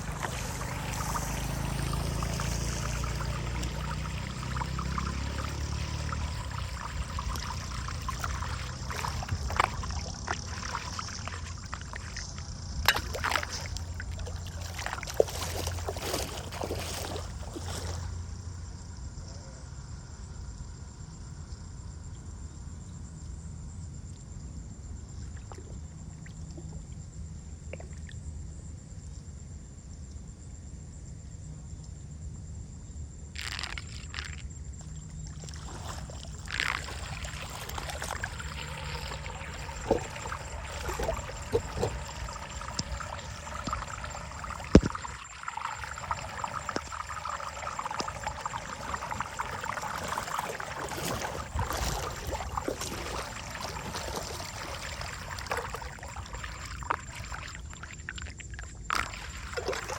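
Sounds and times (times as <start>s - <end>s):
water trickling: 0.0s - 18.4s, 33.4s - 59.9s.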